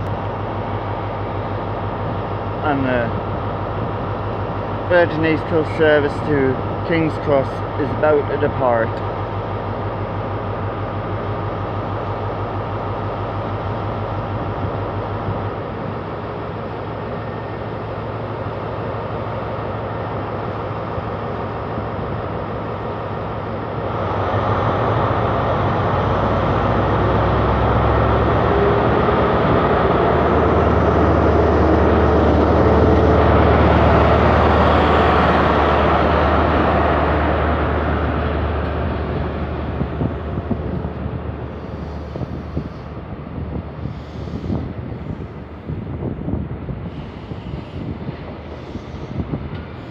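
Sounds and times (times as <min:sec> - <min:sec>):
diesel locomotive engine: 0:00.0 - 0:49.9.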